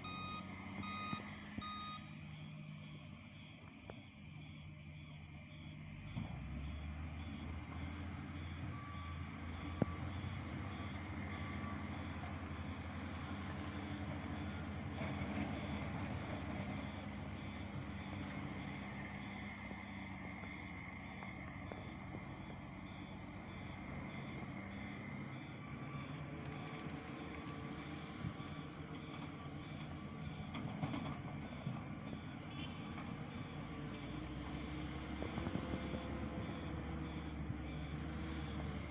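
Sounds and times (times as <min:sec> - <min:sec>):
reversing alarm beeping: 0:00.0 - 0:02.6, 0:08.2 - 0:11.8
heavy machinery diesel engines: 0:00.0 - 0:38.9.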